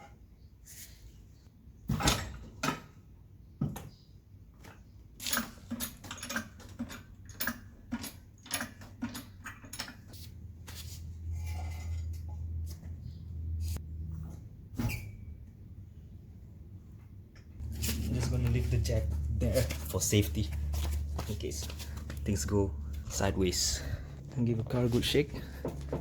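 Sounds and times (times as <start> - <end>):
low hum: 17.6 - 26.0.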